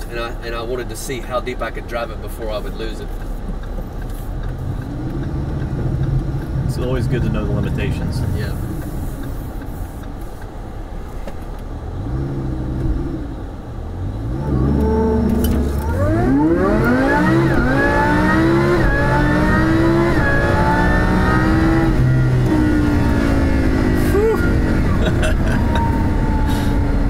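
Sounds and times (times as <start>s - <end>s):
sports car engine accelerating: 3.2s - 27.0s
gearbox upshifts: 14.3s - 27.0s.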